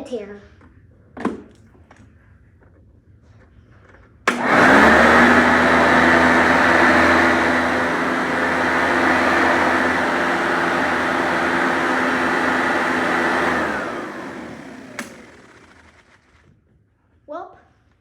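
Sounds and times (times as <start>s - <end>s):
vacuum cleaner motor whining: 4.3s - 16.2s.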